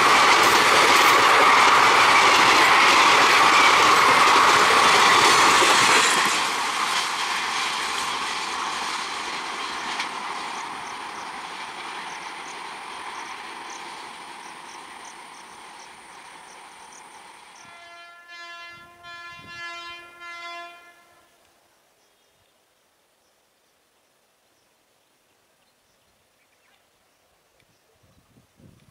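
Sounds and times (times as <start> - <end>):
train wheels and coaches passing: 0.0 - 21.2
train horn: 17.6 - 21.4.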